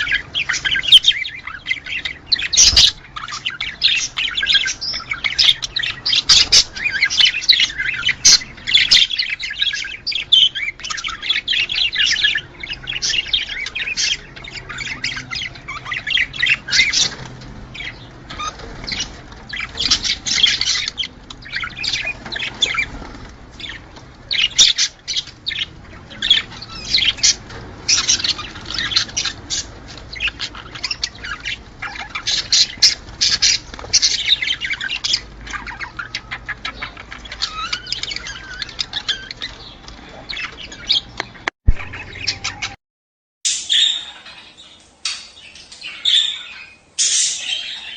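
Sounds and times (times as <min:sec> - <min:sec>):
budgerigars chattering and warbling: 0:00.0 - 0:42.8, 0:43.5 - 0:47.9
sharp bird squawks: 0:46.1 - 0:47.9.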